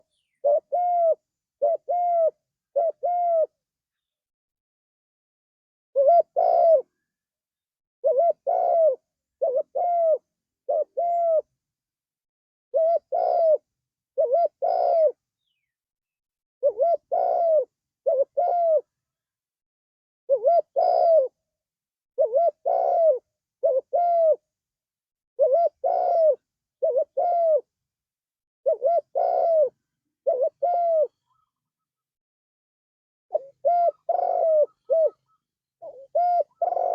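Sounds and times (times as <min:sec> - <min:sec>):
dove cooing: 0:00.0 - 0:03.6, 0:06.0 - 0:07.0, 0:08.0 - 0:11.6, 0:12.7 - 0:15.2, 0:16.6 - 0:18.9, 0:20.3 - 0:21.4, 0:22.2 - 0:24.5, 0:25.4 - 0:27.7, 0:28.6 - 0:32.0, 0:33.3 - 0:36.9.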